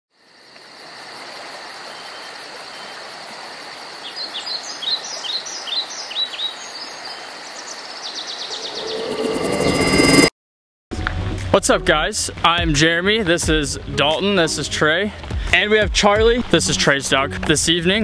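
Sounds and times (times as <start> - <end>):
bird chirping: 4.0 - 9.7
high insect-like trill: 8.4 - 10.3.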